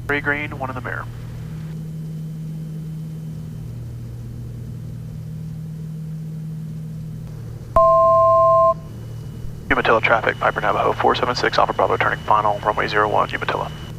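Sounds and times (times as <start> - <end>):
propeller engines droning: 0.0 - 13.9
two-note cockpit alert tone: 7.8 - 8.9.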